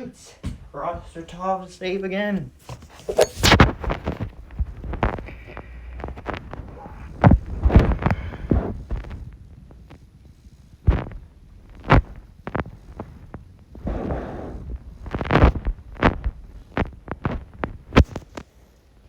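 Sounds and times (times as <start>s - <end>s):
scuffling: 2.2s - 4.2s.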